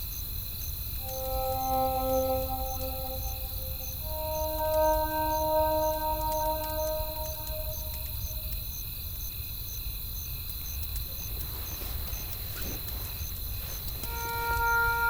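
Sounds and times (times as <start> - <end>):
crickets chirping: 0.0 - 15.0
soft music chord: 1.0 - 8.5, 14.1 - 15.0.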